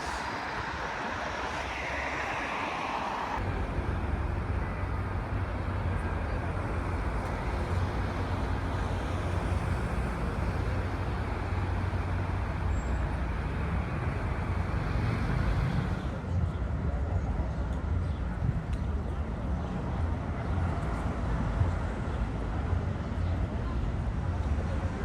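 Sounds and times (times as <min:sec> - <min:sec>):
low engine rumble: 0:00.0 - 0:14.7
road traffic: 0:00.0 - 0:25.0.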